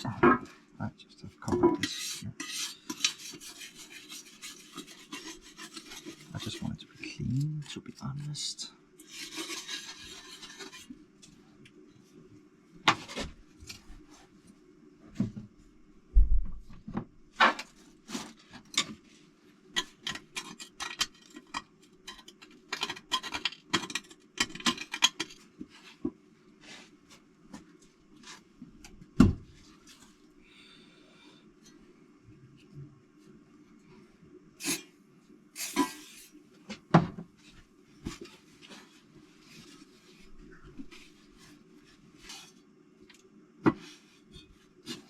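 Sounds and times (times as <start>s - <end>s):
faint steady hum: 0.0s - 45.0s
scrubbing metal cover: 1.8s - 6.6s.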